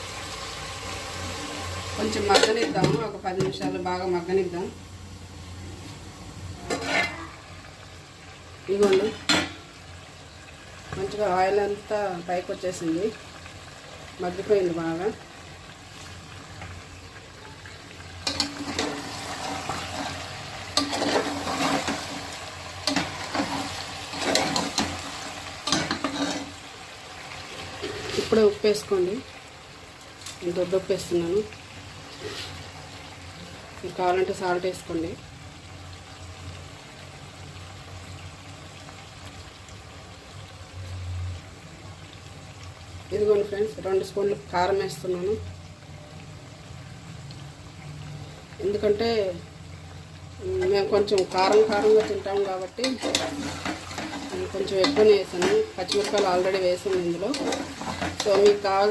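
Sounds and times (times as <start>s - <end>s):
frying sizzle: 0.0s - 58.9s
spoon scraping a pan: 6.6s - 7.3s, 18.2s - 26.6s, 27.8s - 28.4s, 32.1s - 32.6s, 50.6s - 58.9s.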